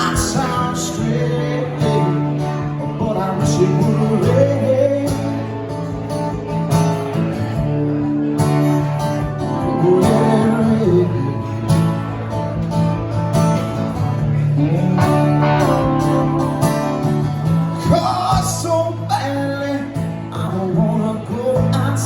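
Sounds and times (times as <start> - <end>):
guitar playing slow soul ballad: 0.0 - 22.0.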